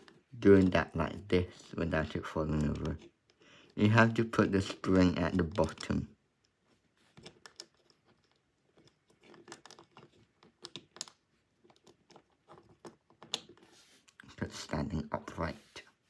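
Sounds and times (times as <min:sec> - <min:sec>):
plastic toy parts clicking: 0:02.0 - 0:14.2.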